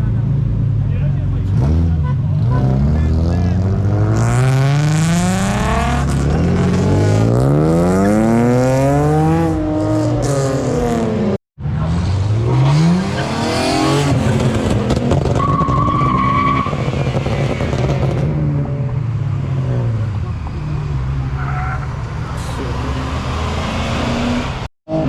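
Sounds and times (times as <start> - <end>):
car engine revving: 1.2 - 25.0.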